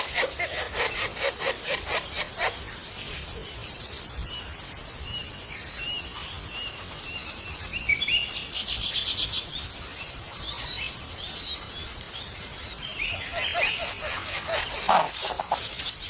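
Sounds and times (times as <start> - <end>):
bird chirping: 4.3 - 16.0
buzzy bird trill: 12.8 - 15.7.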